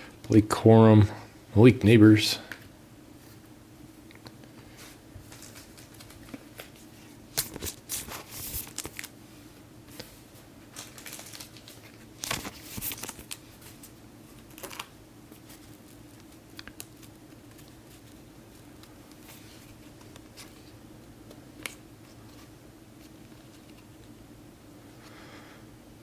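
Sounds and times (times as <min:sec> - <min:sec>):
faint steady hum: 0:00.0 - 0:26.0
wrappers crinkling and rustling: 0:04.8 - 0:09.2, 0:10.7 - 0:20.8.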